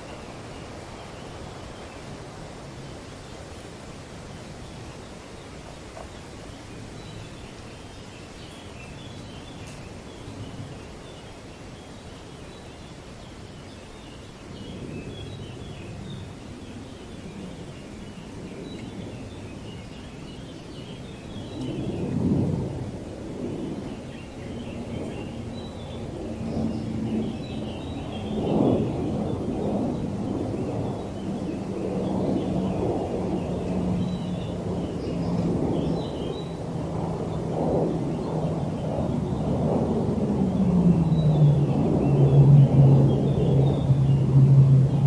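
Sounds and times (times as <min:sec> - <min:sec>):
wind buffeting microphone: 0:00.0 - 0:45.0
wind gusting through trees: 0:00.0 - 0:45.0
low rumbles: 0:32.1 - 0:45.0.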